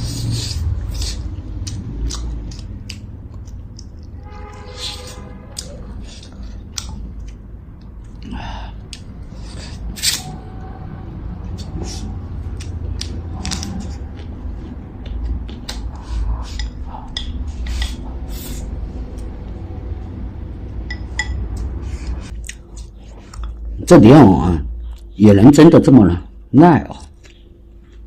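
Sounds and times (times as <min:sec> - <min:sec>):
steady low rumble: 0:05.4 - 0:24.0.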